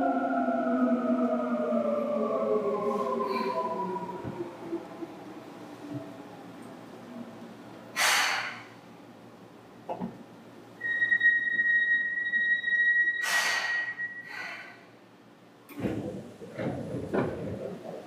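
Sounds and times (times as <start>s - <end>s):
train air hiss: 7.9s - 8.8s, 13.2s - 15.0s.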